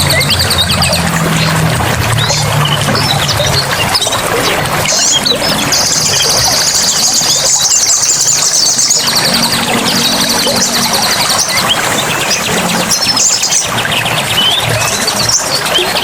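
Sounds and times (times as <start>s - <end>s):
birds chirping and whistling: 0.0s - 16.0s
running water: 0.0s - 16.0s
rapid high trill: 2.7s - 14.8s.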